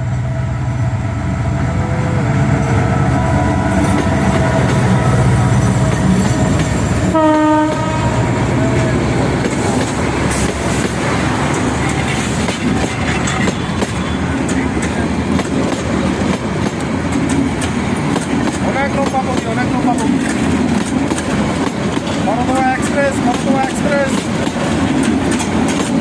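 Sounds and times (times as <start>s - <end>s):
train horn blast: 0.0s - 9.0s
train rumble and wheel clatter: 0.0s - 26.0s.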